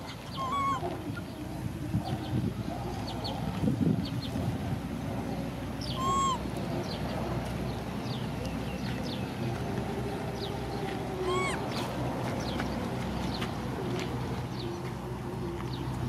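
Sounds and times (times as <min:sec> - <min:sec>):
rising and falling bird calls: 0:00.0 - 0:01.4, 0:05.8 - 0:07.0, 0:10.4 - 0:12.7
small birds chirping: 0:00.0 - 0:04.4, 0:05.7 - 0:16.0.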